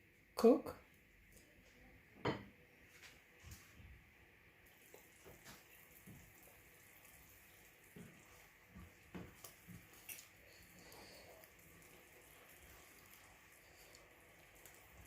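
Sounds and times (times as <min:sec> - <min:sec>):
sauce bubbling in oil: 0:04.6 - 0:15.0.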